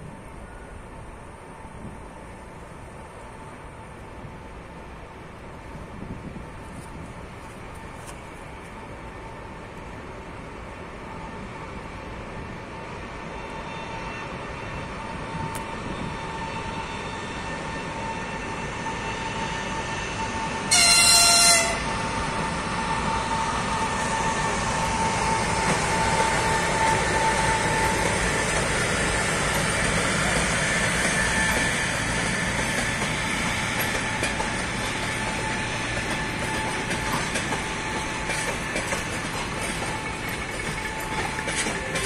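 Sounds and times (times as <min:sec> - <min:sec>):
train rolling into station: 0:00.0 - 0:42.0
locomotive horn blast: 0:20.6 - 0:22.1.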